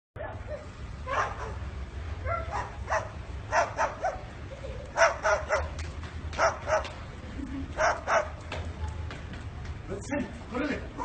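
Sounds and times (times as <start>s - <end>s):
dog barking sharply: 6.4s - 6.9s.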